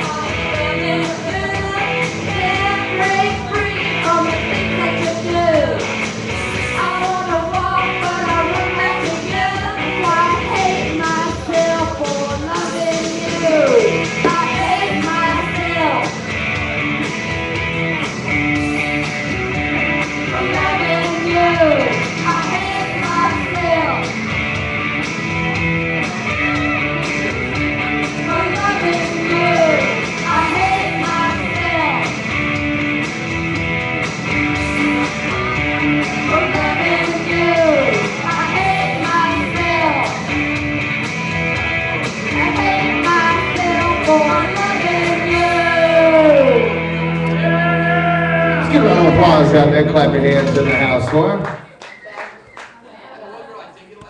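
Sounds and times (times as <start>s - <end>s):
rock music: 0.0s - 51.5s
electric guitar bending notes: 12.5s - 51.2s.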